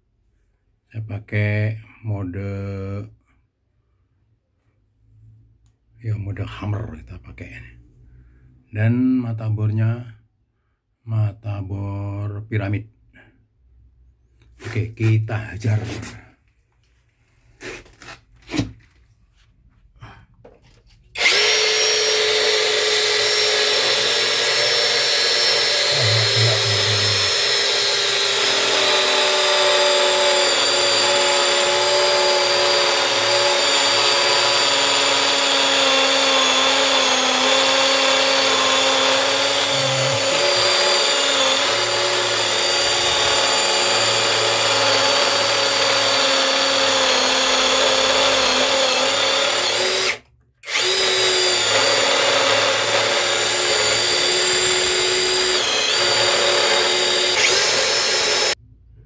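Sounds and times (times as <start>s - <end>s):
hammer drill boring into concrete: 21.2s - 58.6s.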